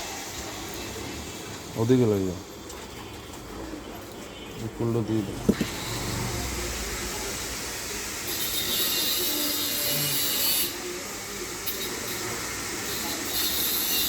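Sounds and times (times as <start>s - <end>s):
high hissing noise: 5.6s - 14.0s.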